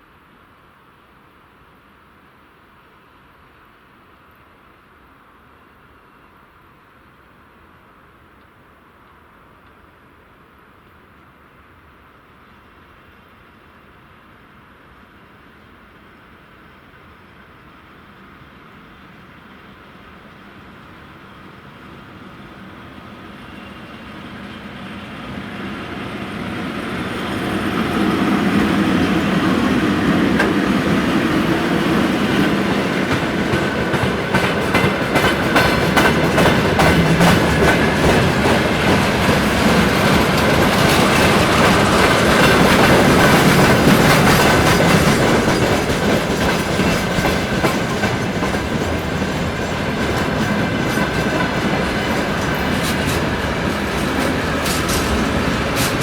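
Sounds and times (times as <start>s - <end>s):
freight train rumble: 16.8s - 56.0s
wheels clattering over rail joints: 28.0s - 56.0s.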